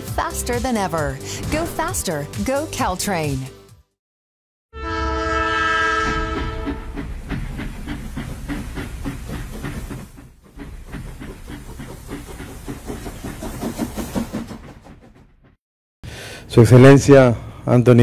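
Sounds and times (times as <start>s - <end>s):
train horn chord: 4.8s - 7.0s
low train rumble: 4.8s - 15.6s
train wheels clacking over rails: 6.1s - 15.6s.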